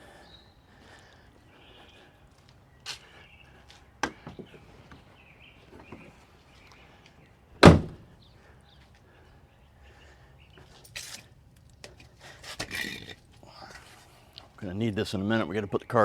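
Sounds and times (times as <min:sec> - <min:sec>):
heavy thump: 0:07.6 - 0:08.0
sharp knocks: 0:07.6 - 0:08.0.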